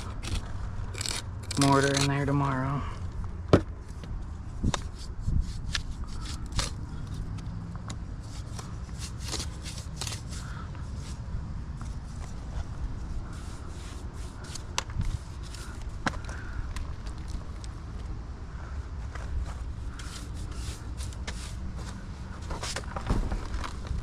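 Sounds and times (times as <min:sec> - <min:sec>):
metal tool scraping brick: 0:00.0 - 0:02.6, 0:04.7 - 0:07.2, 0:08.3 - 0:11.2, 0:19.8 - 0:22.9.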